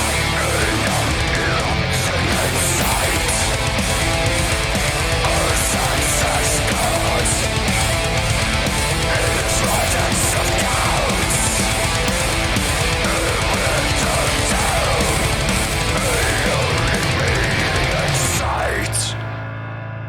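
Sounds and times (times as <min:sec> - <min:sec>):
death-doom metal song: 0:00.0 - 0:20.0.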